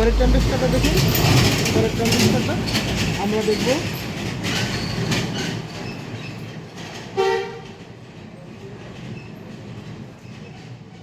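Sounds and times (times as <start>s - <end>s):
street traffic: 0.0s - 11.0s
vehicle horn toot: 7.2s - 7.7s.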